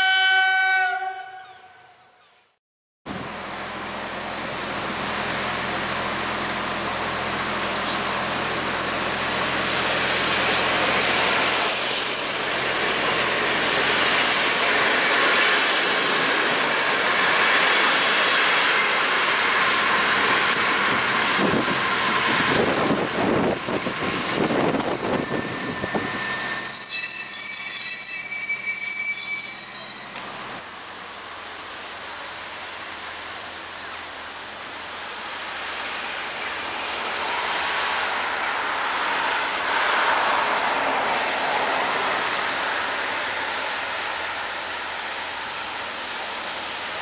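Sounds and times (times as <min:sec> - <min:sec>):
diesel railcar engine running: 0:03.1 - 0:47.0
high wheel squeal: 0:09.1 - 0:30.6.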